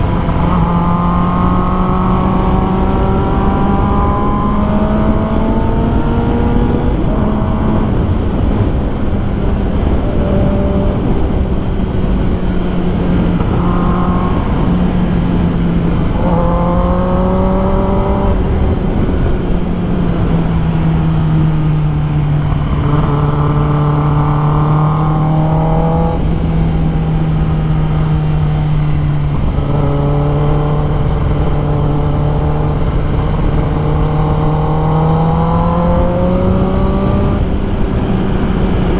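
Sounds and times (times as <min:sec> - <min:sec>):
higher rising engine note: 0:00.0 - 0:38.9
motorcycle engine cruising: 0:00.0 - 0:38.9
wind rush: 0:00.0 - 0:38.9.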